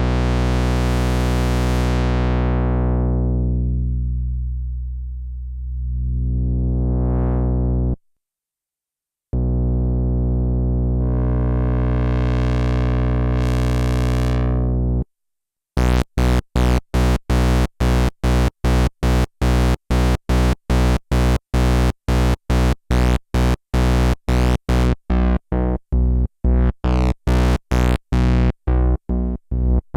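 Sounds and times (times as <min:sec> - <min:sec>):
analog synthesizer held note: 0:05.6 - 0:08.0.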